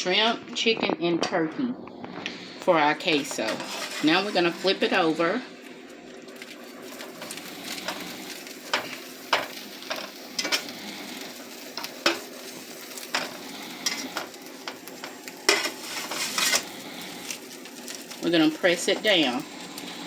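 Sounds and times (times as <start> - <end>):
food sizzling in a pan: 2.3 - 20.0
spatula scraping and tapping pan: 3.0 - 4.6, 8.7 - 10.7, 11.8 - 12.3, 13.0 - 16.6.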